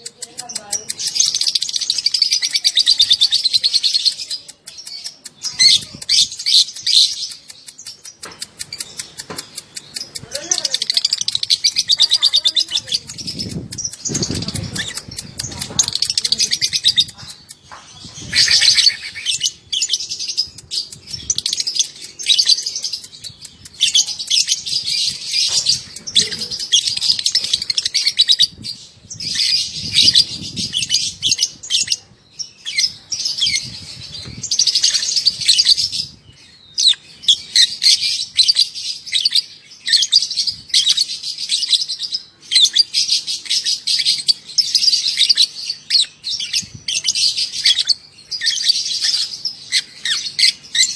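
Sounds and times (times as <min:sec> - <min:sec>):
lovebird chattering trill: 0:00.0 - 0:32.0.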